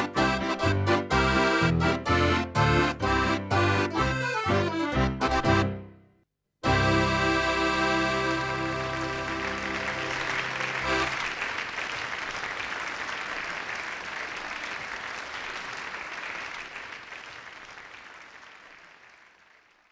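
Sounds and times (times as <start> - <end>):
song final chord: 6.6 - 11.1
audience applause: 8.2 - 19.9.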